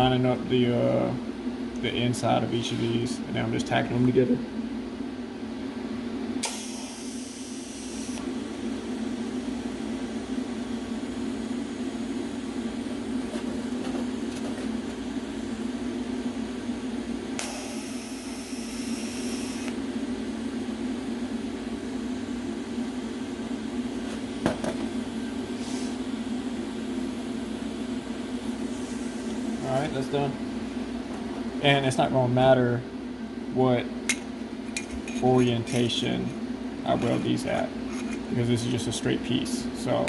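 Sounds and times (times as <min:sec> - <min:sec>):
steady machine hum: 0:00.0 - 0:40.0
welding hissing buzz: 0:06.4 - 0:08.3, 0:17.4 - 0:19.7.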